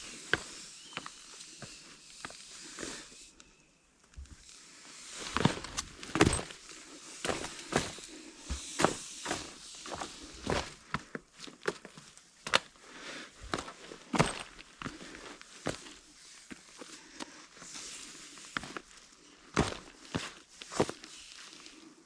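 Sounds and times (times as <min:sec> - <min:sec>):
footsteps on a trail: 0:00.2 - 0:02.9, 0:05.2 - 0:17.1, 0:18.4 - 0:18.9, 0:19.5 - 0:21.1.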